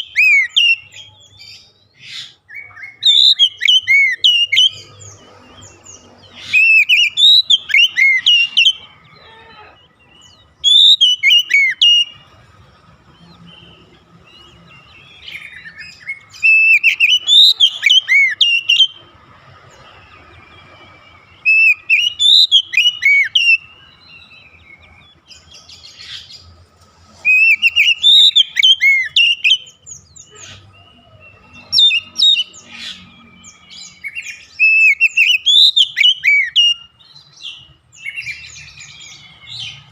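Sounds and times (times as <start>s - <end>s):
bird singing swooping whistles: 0.0s - 5.2s, 6.4s - 8.8s, 10.6s - 12.2s, 15.2s - 19.0s, 21.3s - 24.6s, 27.3s - 31.0s, 31.6s - 37.0s.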